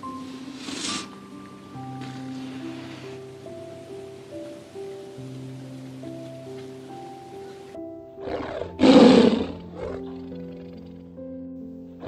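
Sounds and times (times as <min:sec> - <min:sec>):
soft background music: 0:00.0 - 0:12.0
tiger roaring: 0:08.2 - 0:10.9
tiger growl: 0:08.2 - 0:11.1.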